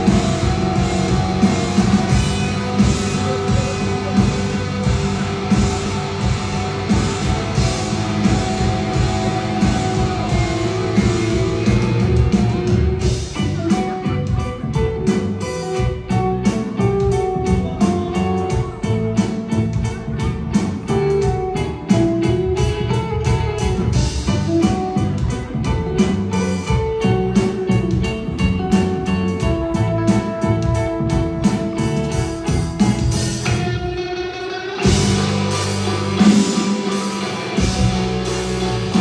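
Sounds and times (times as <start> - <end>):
drum hits: 0.0 - 13.4, 34.8 - 39.0
bass: 0.0 - 39.0
guitar melody: 0.0 - 39.0.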